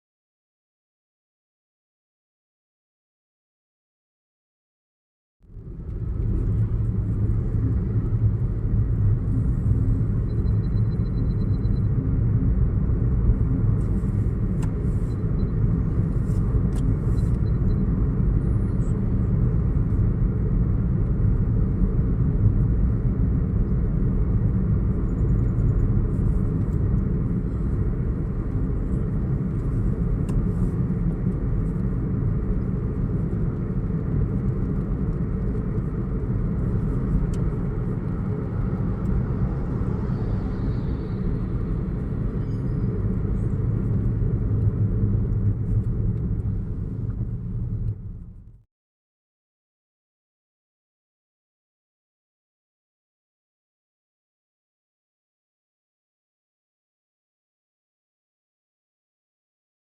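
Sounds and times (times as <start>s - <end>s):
car driving rumble: 5.4s - 48.6s.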